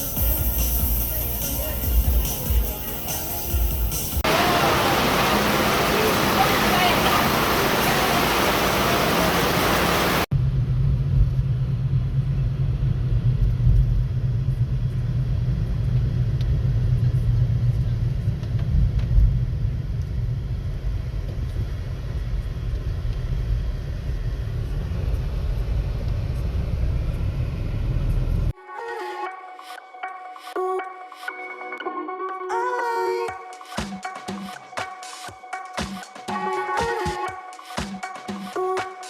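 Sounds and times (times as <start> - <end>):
steady low rumble: 3.7 - 28.6
rain pouring: 4.2 - 10.3.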